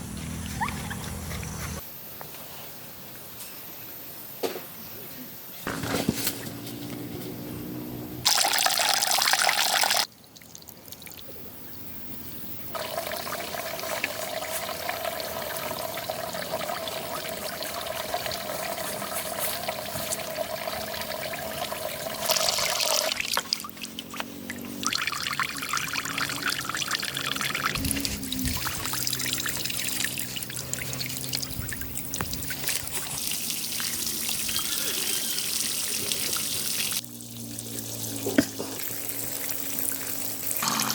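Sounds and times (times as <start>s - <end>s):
water pouring and trickling: 8.2s - 11.4s, 12.7s - 40.9s.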